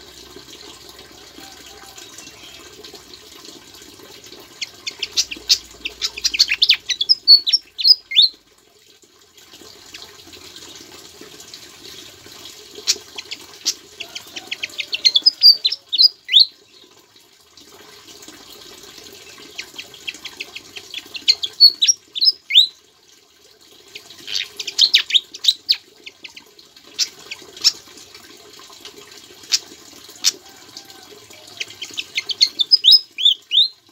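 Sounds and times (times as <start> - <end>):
steady water-like hiss: 0.0 - 32.7
songbird singing chips and whistles: 4.8 - 8.3, 21.2 - 22.7, 31.7 - 33.7.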